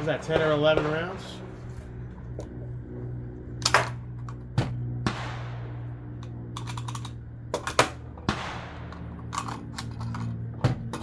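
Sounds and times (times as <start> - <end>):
suppressed rifle shots: 0.0 - 1.5, 4.6 - 10.0
low hum: 0.0 - 11.0
rifle action clattering: 6.2 - 11.0.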